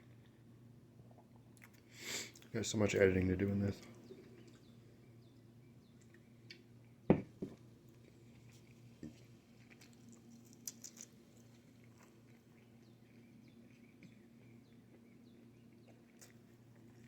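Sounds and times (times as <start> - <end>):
low steady hum: 0.0 - 17.0
chewing and mouth clicks: 1.1 - 2.5, 7.9 - 17.0.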